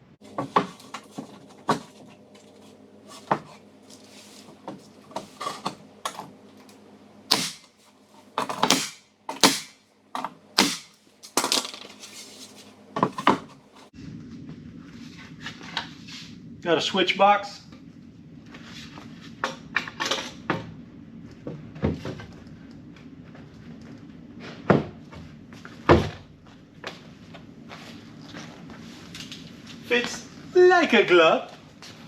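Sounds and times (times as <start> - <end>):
steady low hum: 0.0 - 19.4
wooden boards knocking and tapping: 0.3 - 2.0, 8.4 - 12.4, 13.0 - 13.8.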